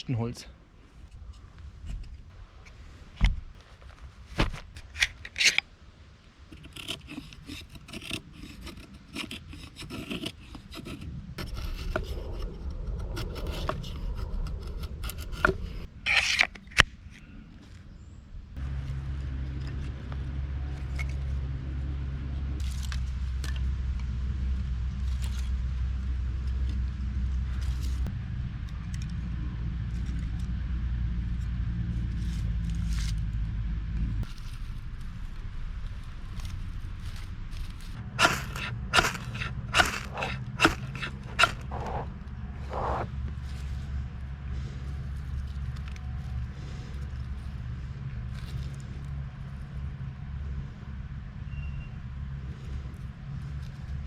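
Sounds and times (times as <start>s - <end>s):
scraping on kindling: 6.5s - 16.8s, 36.3s - 49.0s
steady low rumble: 10.5s - 54.0s
sharp knocks: 38.2s - 42.1s.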